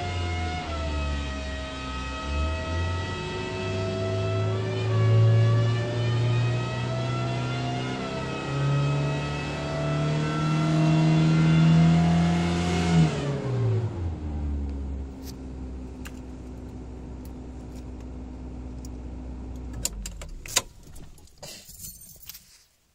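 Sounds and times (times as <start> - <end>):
car engine revving: 0.0 - 21.2.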